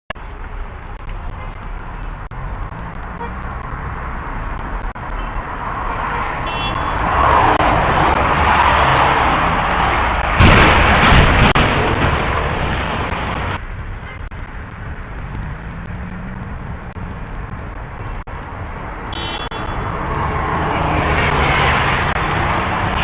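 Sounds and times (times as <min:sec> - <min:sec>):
road traffic rumble: 0:00.1 - 0:23.0
short high beep: 0:19.2 - 0:19.8.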